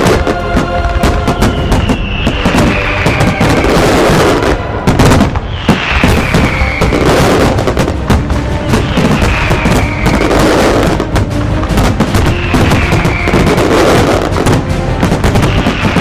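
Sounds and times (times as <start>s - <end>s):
firework bangs crackling: 0.0s - 16.0s
whistling shells falling in pitch: 1.3s - 4.0s, 5.4s - 7.2s, 8.8s - 10.5s, 12.3s - 13.6s.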